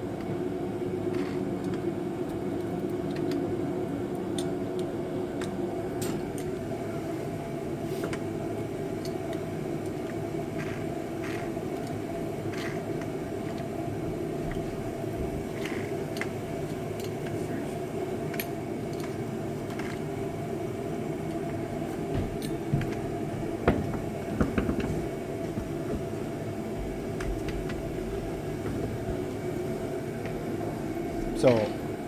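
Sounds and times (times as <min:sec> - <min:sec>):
sharp knocks: 0:23.6 - 0:26.1.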